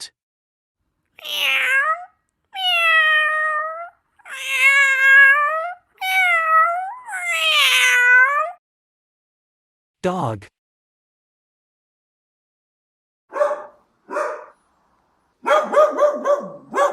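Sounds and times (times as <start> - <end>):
cat meowing: 1.2 - 8.6.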